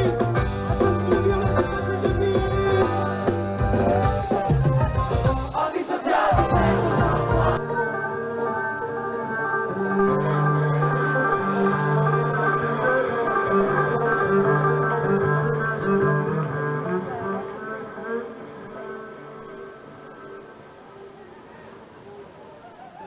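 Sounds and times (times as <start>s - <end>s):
drums and low beats: 0.0s - 5.7s, 6.3s - 7.6s
bluegrass string band music: 0.0s - 20.2s.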